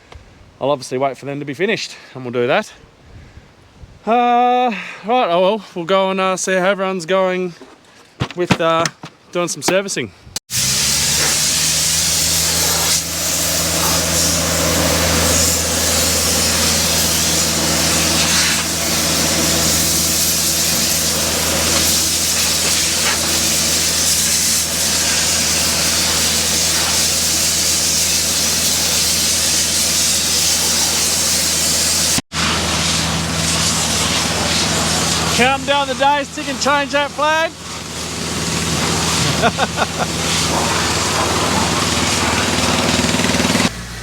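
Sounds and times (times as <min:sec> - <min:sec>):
engine humming: 0:10.5 - 0:44.0.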